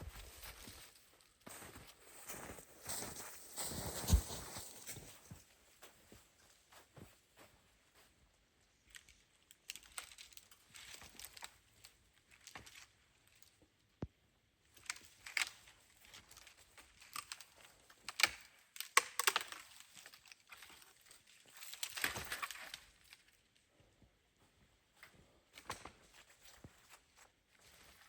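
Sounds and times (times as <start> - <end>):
sharp snaps and clicks: 18.0 - 19.6.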